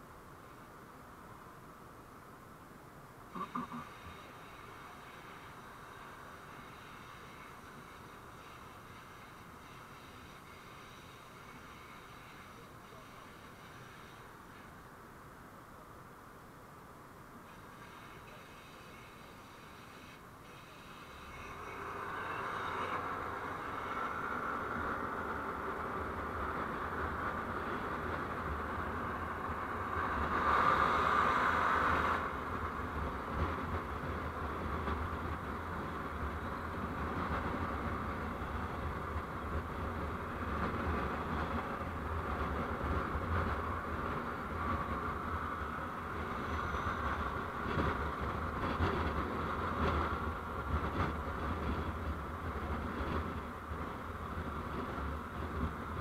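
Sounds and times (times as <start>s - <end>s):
road and wind noise: 0.0s - 56.0s
vehicle engine rumble: 0.0s - 56.0s.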